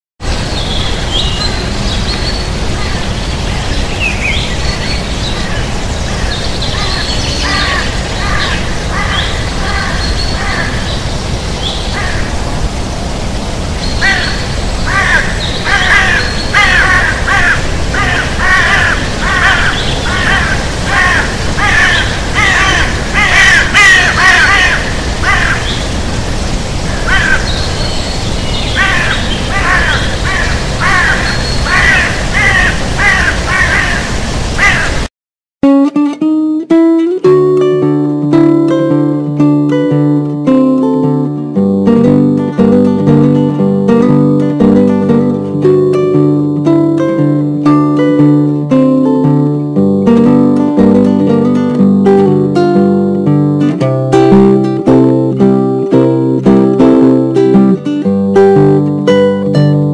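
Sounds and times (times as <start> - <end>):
birds calling: 0.3 - 12.6, 13.8 - 35.1.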